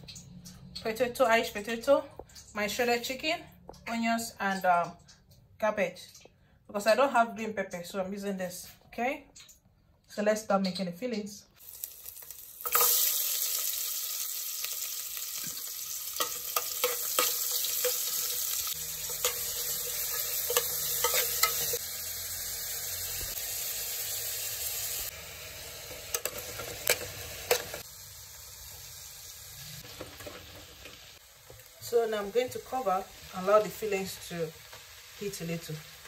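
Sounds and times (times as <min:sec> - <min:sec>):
food sizzling in a pan: 0:11.6 - 0:36.0
spoon clicking against pan: 0:19.1 - 0:21.8.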